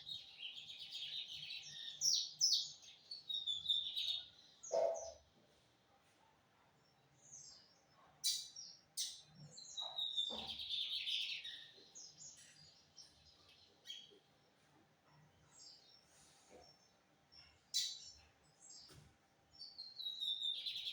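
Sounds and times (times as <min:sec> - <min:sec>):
bird chirps and buzzy song: 0:19.5 - 0:20.9.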